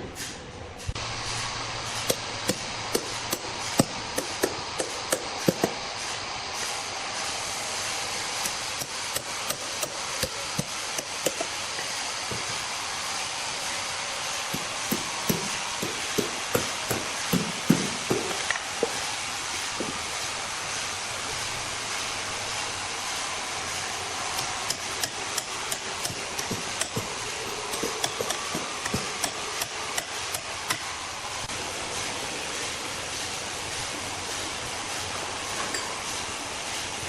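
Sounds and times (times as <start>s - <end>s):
steady hiss: 0.9s - 37.0s
sharp hammer-like knocks: 14.5s - 18.5s.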